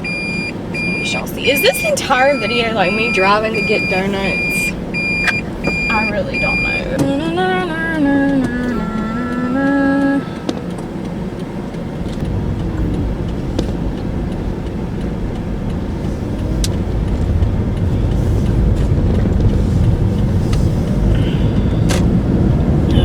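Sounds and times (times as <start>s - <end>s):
engine and tyre rumble: 0.0s - 23.0s
faint clicks: 7.0s - 22.7s.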